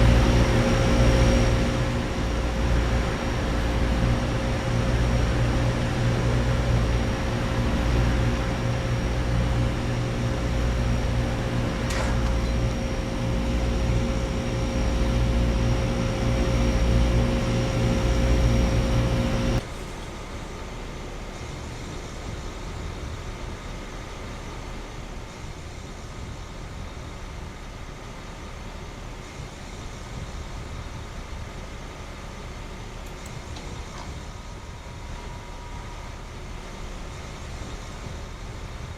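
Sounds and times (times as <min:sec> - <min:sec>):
air conditioner compressor hum: 0:00.0 - 0:38.9
faint high whine: 0:00.0 - 0:38.9
fan whirring: 0:00.0 - 0:38.9.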